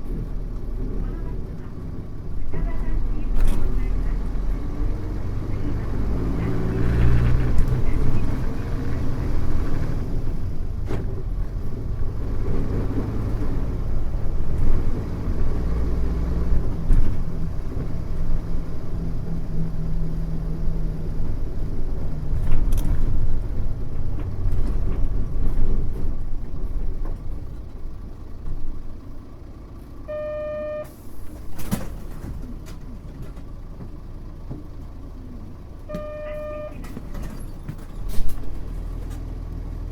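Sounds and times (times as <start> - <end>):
bus diesel engine under load: 0.0 - 39.9
short electronic beep: 30.1 - 31.1, 35.9 - 36.9.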